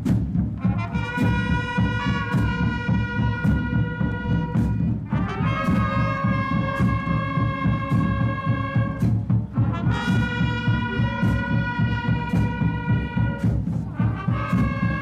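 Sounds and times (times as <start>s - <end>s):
brass band playing chords: 0.0s - 15.0s
steady drum beat: 0.0s - 15.0s.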